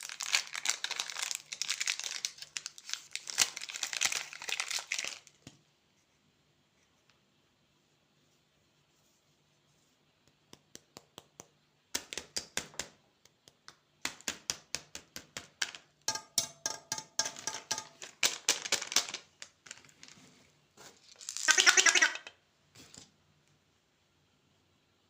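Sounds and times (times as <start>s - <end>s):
candy wrapper crinkling: 0.0s - 5.4s, 18.0s - 20.2s, 21.0s - 22.3s.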